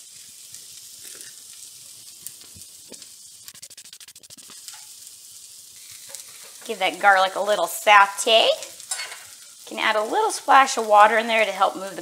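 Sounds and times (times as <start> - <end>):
oil crackling: 0.0 - 12.0
vegetables sizzling in oil: 0.0 - 12.0.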